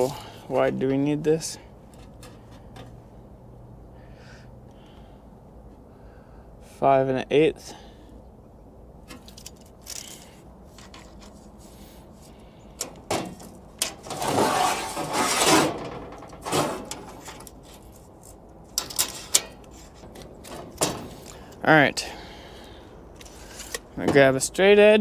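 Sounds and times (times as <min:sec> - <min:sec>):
tools clicking and knocking: 0:09.1 - 0:11.4, 0:18.7 - 0:21.6
sheet metal scraping rattle: 0:12.8 - 0:18.0, 0:18.8 - 0:21.6.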